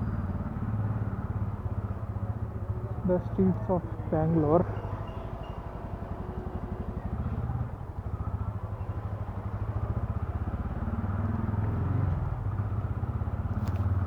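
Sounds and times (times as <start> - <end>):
motorcycle engine running: 5.2 - 14.0.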